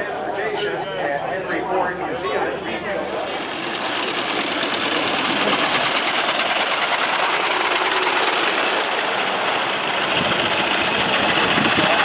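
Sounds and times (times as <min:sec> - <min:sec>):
car engine idling with ticking: 0:03.2 - 0:12.0.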